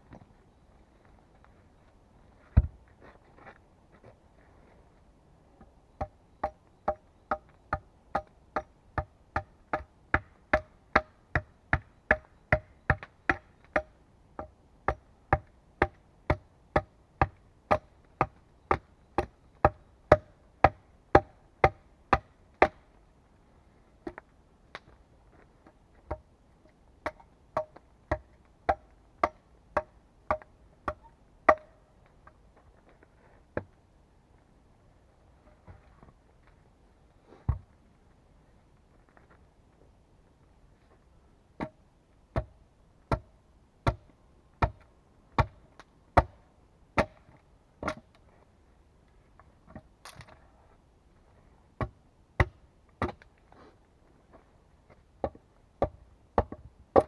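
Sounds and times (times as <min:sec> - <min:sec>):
hand tool striking wood: 0:27.0 - 0:31.7.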